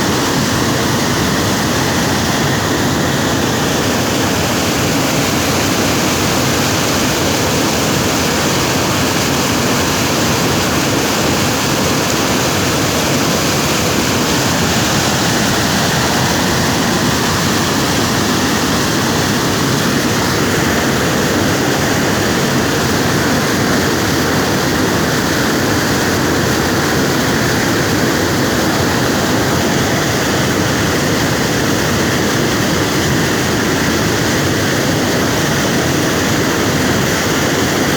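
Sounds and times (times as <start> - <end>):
water rushing at a dam: 0.0 - 37.9.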